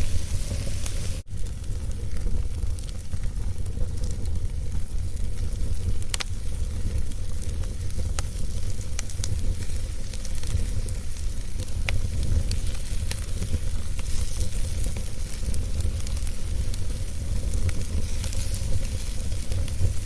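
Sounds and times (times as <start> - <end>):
fire rumbling in fireplace: 0.0 - 20.0
wood crackling and popping: 0.0 - 20.0.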